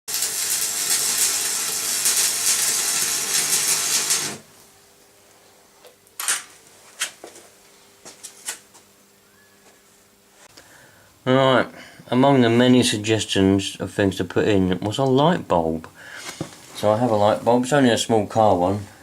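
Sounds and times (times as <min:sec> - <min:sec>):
loud steady hiss: 0:00.1 - 0:04.9
low electrical hum: 0:00.1 - 0:19.0.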